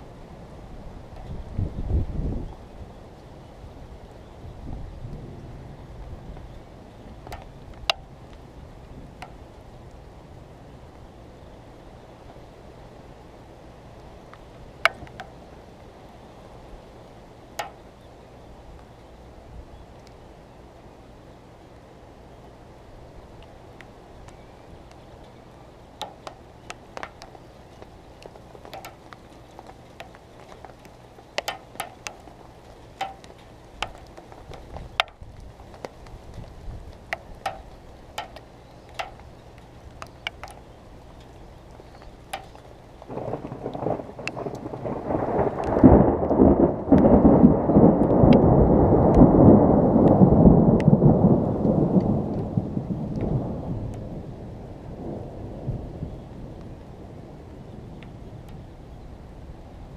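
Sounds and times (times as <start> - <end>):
raindrops ticking on a case: 6.0 - 10.0, 14.0 - 15.9, 17.5 - 17.9, 23.3 - 54.1
rolling thunder rumble: 43.0 - 59.9.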